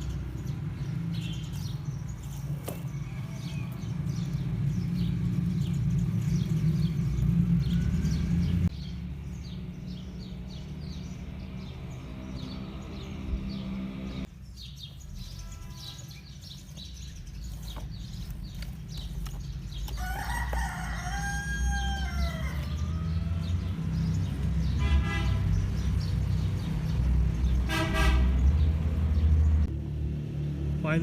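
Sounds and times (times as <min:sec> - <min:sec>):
rooster crowing: 0:20.0 - 0:23.8.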